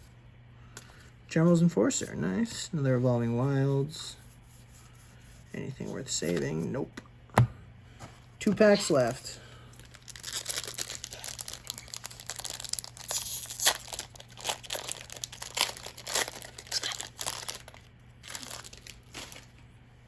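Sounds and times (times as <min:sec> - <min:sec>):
plastic wrapper crinkling: 0:09.7 - 0:19.7.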